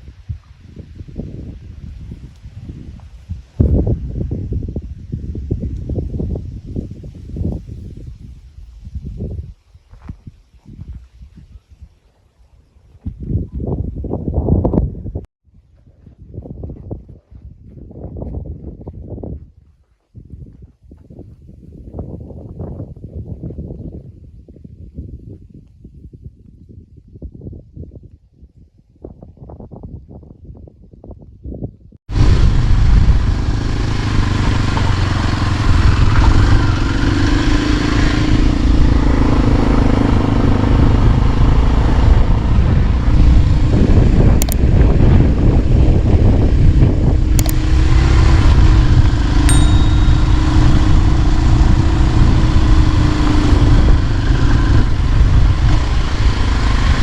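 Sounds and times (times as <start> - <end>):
wind noise on microphone: 0.0 - 57.0
vehicle engine: 32.1 - 57.0
sharp clicks: 44.4 - 44.6, 47.4 - 47.6.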